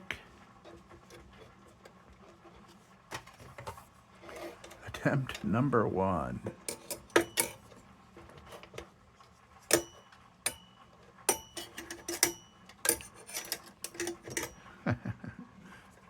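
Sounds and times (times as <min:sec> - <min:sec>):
metal lantern parts clicking: 0:06.5 - 0:07.8, 0:09.7 - 0:14.7.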